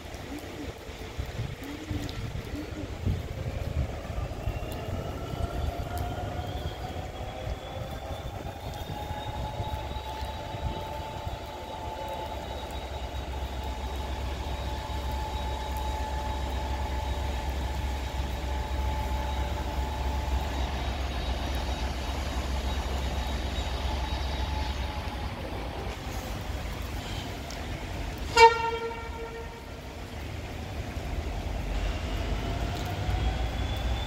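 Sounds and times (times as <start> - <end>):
steady whines: 3.4 - 26.9.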